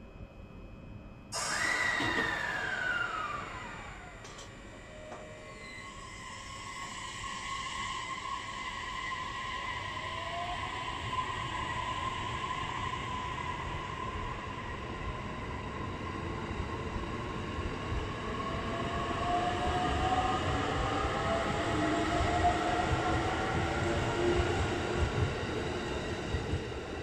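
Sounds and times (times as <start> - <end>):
train motors whining: 1.4 - 9.9.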